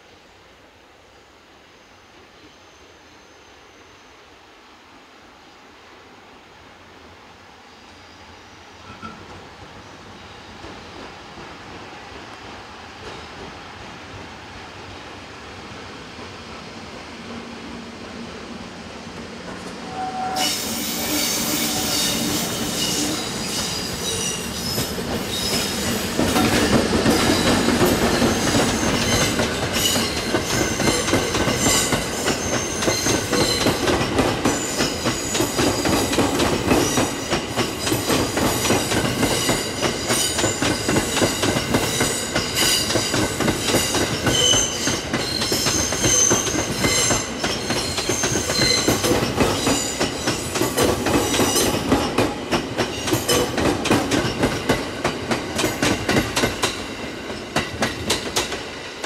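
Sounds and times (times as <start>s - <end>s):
train wheels squealing: 1.1s - 4.3s, 7.7s - 10.8s, 19.8s - 57.9s.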